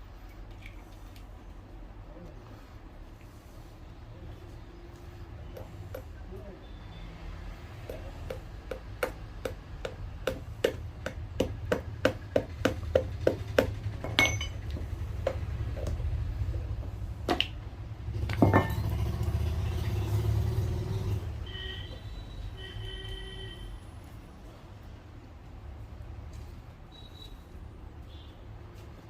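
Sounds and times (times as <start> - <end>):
low traffic rumble: 0.0 - 29.0
hammer tapping on shoe sole: 5.5 - 6.2, 7.8 - 16.0.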